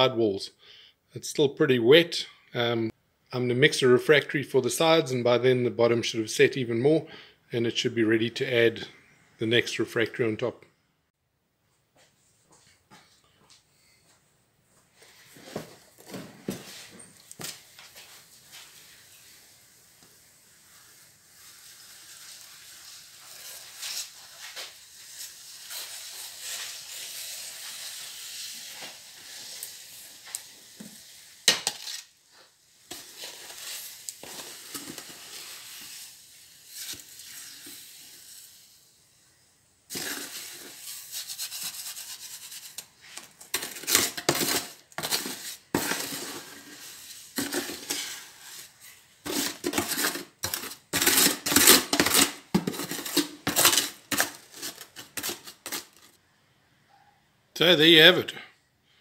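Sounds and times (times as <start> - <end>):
metal tool scraping wet cement: 21.4 - 32.1, 32.9 - 38.6, 39.9 - 56.2.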